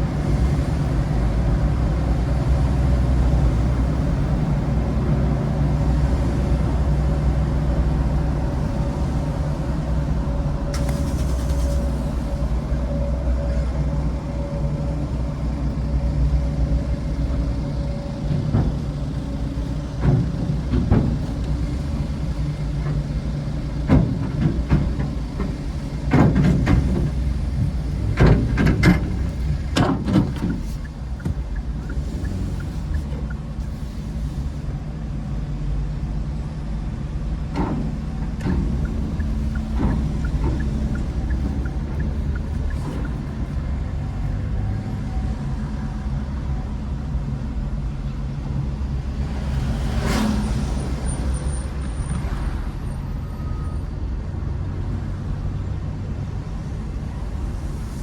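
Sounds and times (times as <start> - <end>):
low engine drone: 0.0 - 58.0
sharp knocks and clunks: 20.0 - 21.7, 23.8 - 33.3, 37.5 - 43.4.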